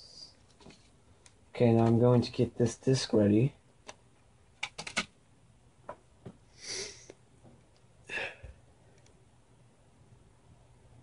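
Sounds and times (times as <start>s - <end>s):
person sniffing: 6.5s - 7.2s.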